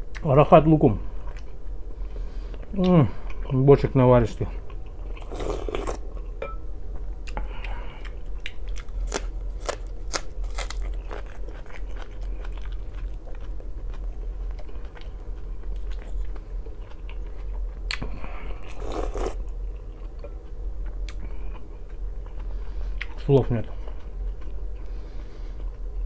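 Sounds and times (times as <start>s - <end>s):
chewing and crunching food: 7.0s - 26.0s.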